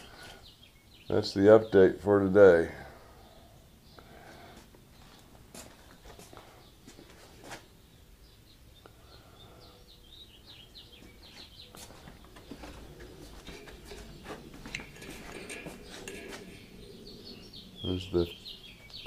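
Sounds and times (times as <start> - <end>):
faint bird chirping: 0.0 - 19.0
handling clicks and knocks: 12.0 - 16.6.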